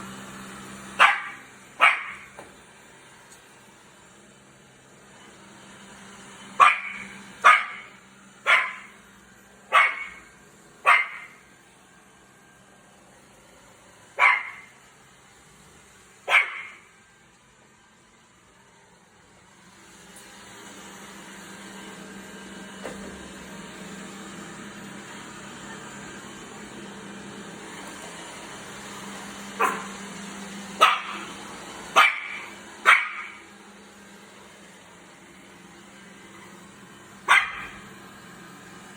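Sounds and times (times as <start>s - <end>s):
vacuum cleaner humming: 0.0s - 38.9s
dog barking: 1.0s - 2.3s, 6.6s - 9.0s, 9.7s - 11.4s, 14.2s - 14.7s, 16.3s - 16.9s, 29.6s - 30.0s, 30.8s - 31.3s, 31.9s - 33.4s, 37.3s - 37.8s.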